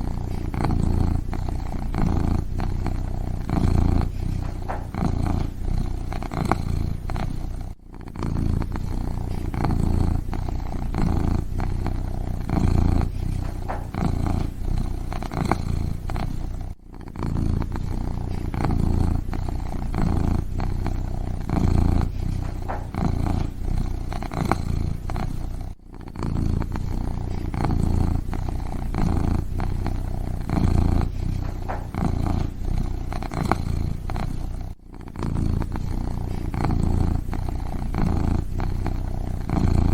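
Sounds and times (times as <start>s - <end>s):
kitten purring: 0.0s - 39.9s.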